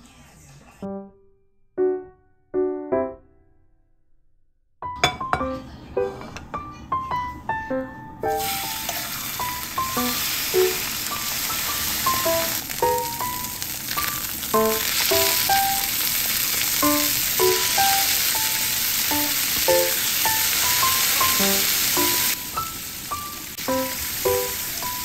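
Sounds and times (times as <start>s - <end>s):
music of picked notes: 0.8s - 3.7s, 4.8s - 16.0s, 16.7s - 25.0s
food sizzling in a pan: 8.3s - 25.0s.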